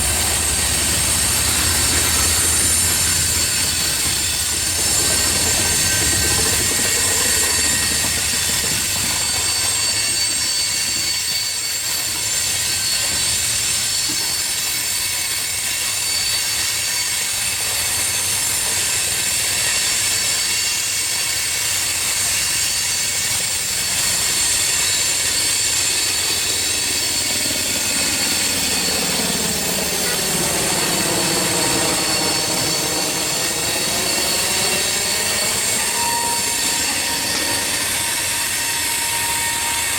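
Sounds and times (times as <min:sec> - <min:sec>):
freight train wheel squeal: 0:00.0 - 0:39.9
low drone with sweeping tones: 0:25.8 - 0:39.9.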